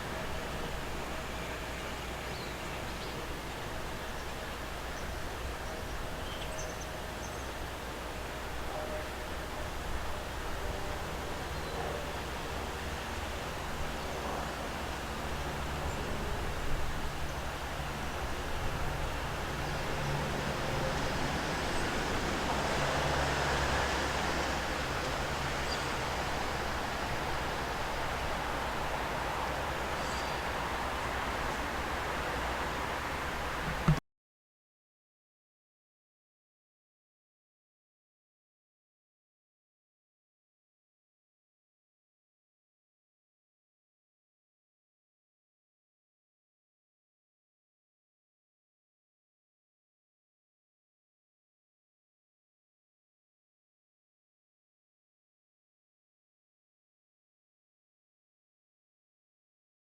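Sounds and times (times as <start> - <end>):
steady outdoor noise: 0.0 - 34.0
low vehicle hum: 28.7 - 34.0.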